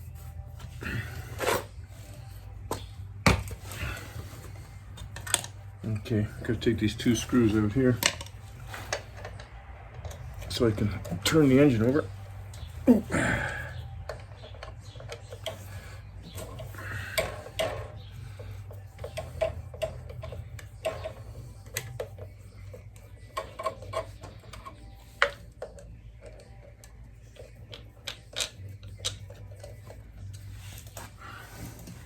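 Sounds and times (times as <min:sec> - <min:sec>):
steady low hum: 0:00.0 - 0:32.0
hand tools clicking on metal: 0:19.0 - 0:22.3.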